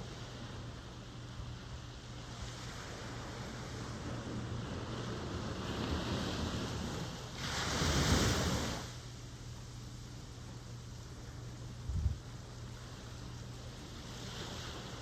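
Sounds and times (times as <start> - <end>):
ocean surf washing in: 2.3 - 9.0
wave breaking: 6.6 - 8.9.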